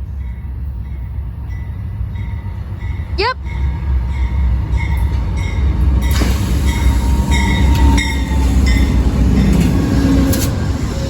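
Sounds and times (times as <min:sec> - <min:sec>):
passing train rumble: 0:00.0 - 0:11.0
high-pitched metallic squeals: 0:06.1 - 0:11.0.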